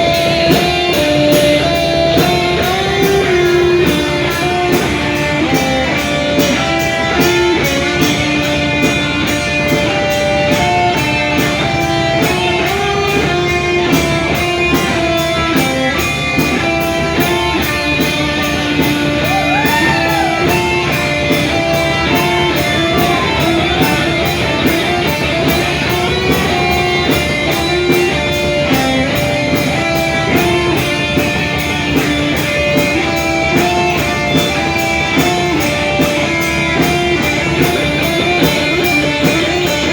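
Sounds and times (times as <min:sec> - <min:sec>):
bass guitar: 0:00.0 - 0:39.9
electric guitar melody: 0:00.0 - 0:39.9
steady drum beat: 0:00.0 - 0:39.9.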